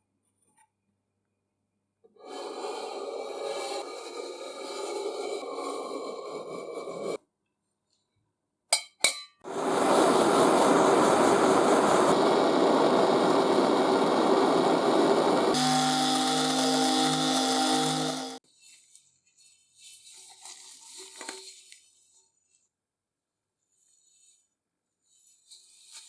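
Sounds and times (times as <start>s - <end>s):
loud grinding noise: 9.5s - 18.4s
machine motor hum: 11.8s - 18.4s.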